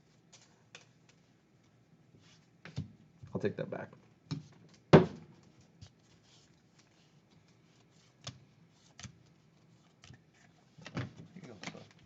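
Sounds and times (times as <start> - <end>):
sharp knock on tabletop: 5.0 - 5.2.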